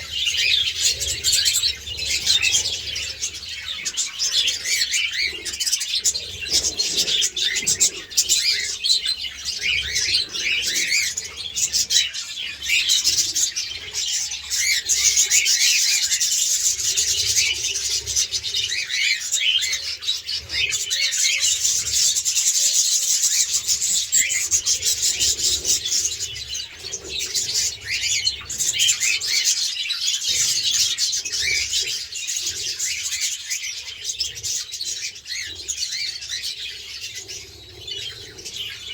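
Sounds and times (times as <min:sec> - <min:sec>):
birds chirping and chattering: 0:00.0 - 0:38.9.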